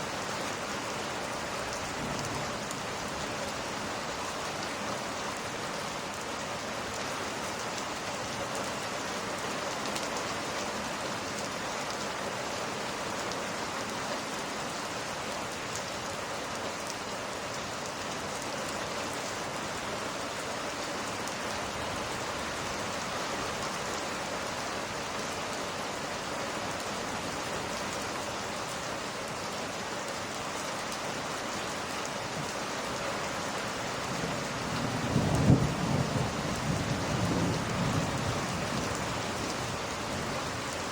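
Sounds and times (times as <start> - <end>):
steady rain hiss: 0.0 - 40.9
low rumble of thunder: 1.9 - 2.8, 34.7 - 39.0.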